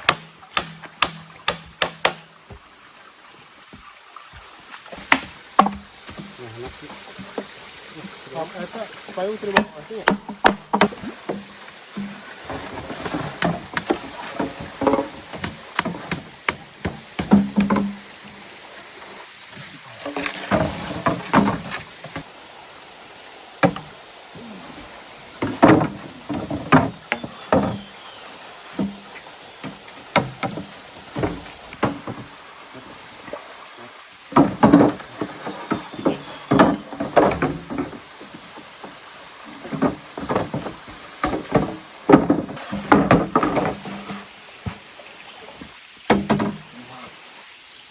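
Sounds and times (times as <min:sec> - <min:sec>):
rustling and scraping materials: 0:11.3 - 0:16.4, 0:19.4 - 0:22.3, 0:34.4 - 0:44.9.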